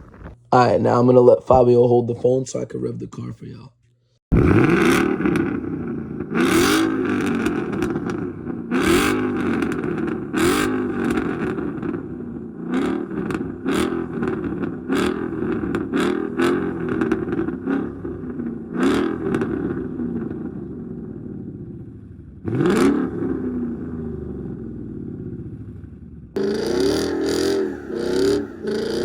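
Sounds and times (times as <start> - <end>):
car engine revving: 4.3 - 20.6, 22.4 - 29.0.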